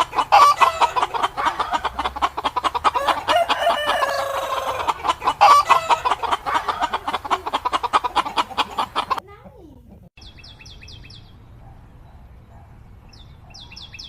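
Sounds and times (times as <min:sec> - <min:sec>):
chickens clucking: 0:00.0 - 0:10.1
rooster crowing: 0:02.8 - 0:07.0.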